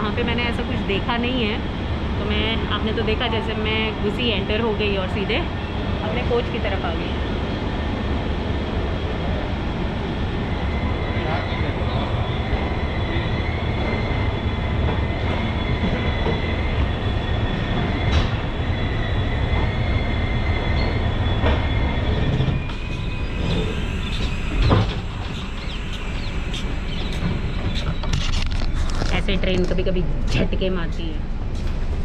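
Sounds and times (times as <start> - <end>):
train rumble: 0.0 - 32.0
wheel squeal: 11.9 - 29.0.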